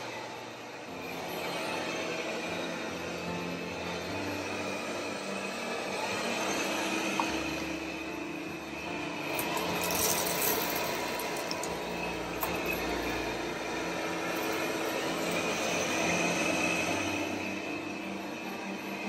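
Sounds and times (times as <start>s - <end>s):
robot vacuum motor and brush hum: 0.0s - 19.0s.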